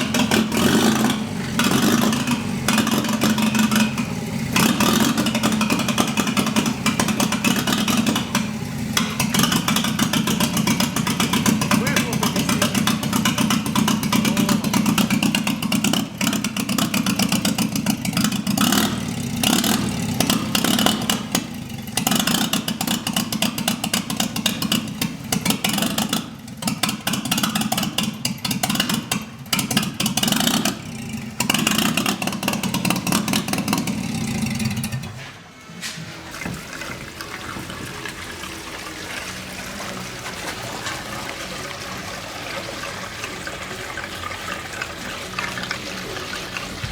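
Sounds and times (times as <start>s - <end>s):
engine revving: 0.0s - 35.4s.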